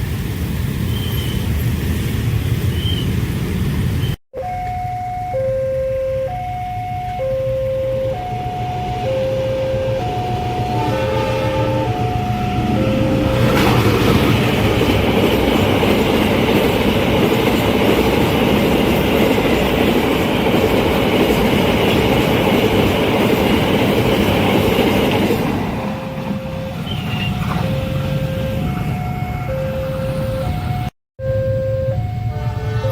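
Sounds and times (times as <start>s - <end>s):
two-tone crossing warning alarm: 4.4s - 32.9s
train wheels clattering on rails: 13.4s - 28.1s.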